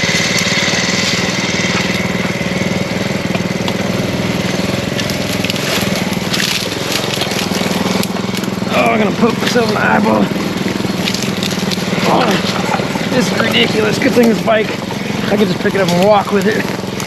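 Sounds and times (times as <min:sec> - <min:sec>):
crunching and crackling: 0:00.0 - 0:17.0
mini bike engine running: 0:00.0 - 0:17.0.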